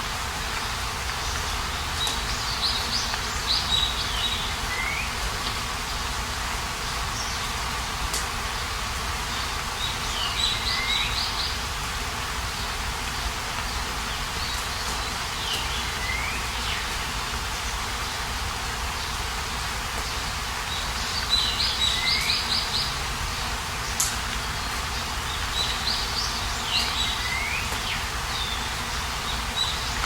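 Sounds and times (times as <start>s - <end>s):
steady background hiss: 0.0s - 30.0s
songbird singing: 0.6s - 5.2s, 9.3s - 11.7s, 12.6s - 18.2s, 20.0s - 23.1s, 23.8s - 30.0s.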